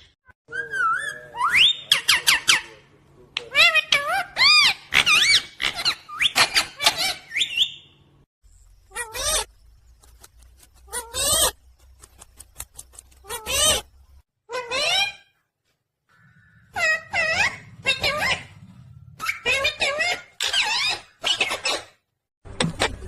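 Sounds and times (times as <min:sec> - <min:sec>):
parrot squawking and chattering: 0:03.4 - 0:07.9, 0:10.9 - 0:11.6, 0:13.2 - 0:13.9, 0:14.5 - 0:15.4, 0:16.1 - 0:22.0.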